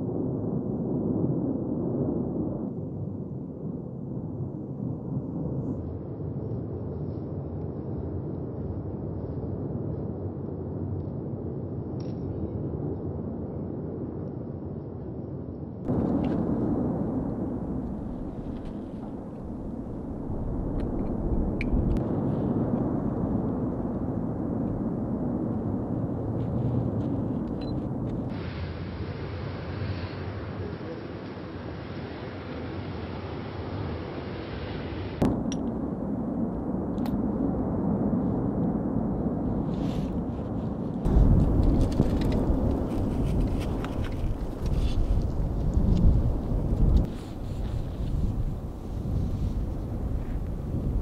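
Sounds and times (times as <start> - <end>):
volcano rumbling roar: 15.9 - 34.1, 41.1 - 51.0.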